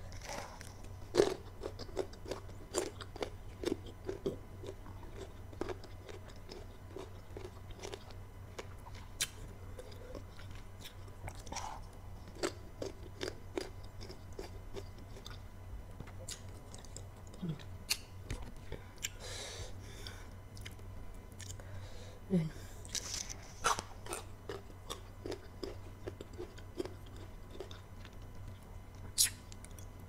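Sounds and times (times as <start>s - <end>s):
chewing and crunching: 0.0s - 19.2s, 20.0s - 21.7s, 22.8s - 30.0s
wet mouth clicks: 29.2s - 29.4s.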